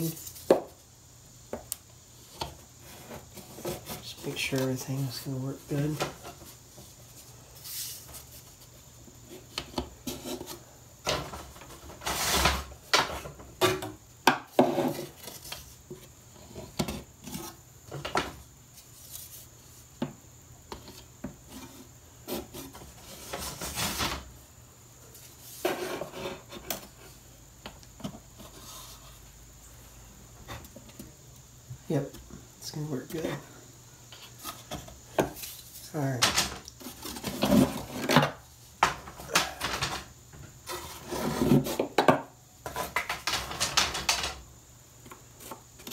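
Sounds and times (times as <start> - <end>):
wood scraping rubs: 2.2 - 13.2, 25.1 - 27.2, 28.0 - 29.4, 39.2 - 41.9.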